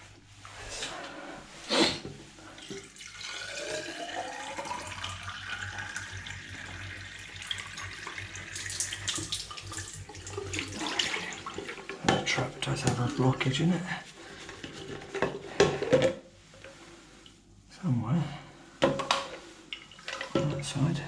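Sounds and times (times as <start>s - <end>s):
water running from tap: 2.6s - 13.4s.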